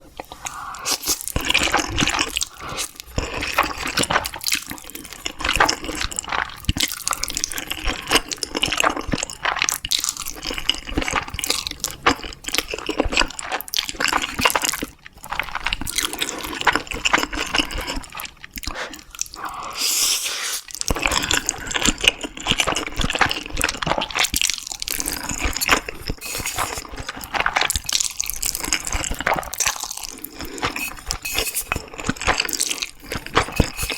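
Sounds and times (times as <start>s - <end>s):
wet chewing and smacking: 0.1s - 33.9s
slurping: 24.8s - 33.9s.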